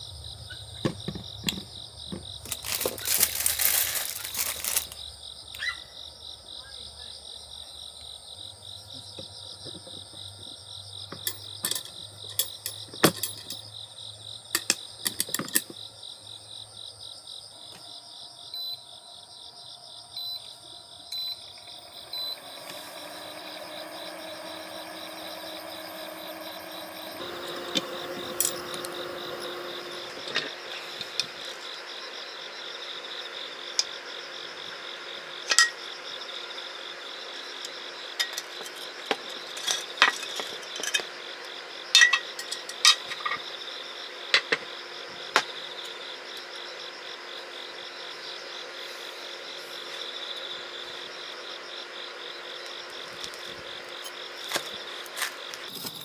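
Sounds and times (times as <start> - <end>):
crickets trilling: 0.0 - 56.0
steady hiss: 21.1 - 35.6.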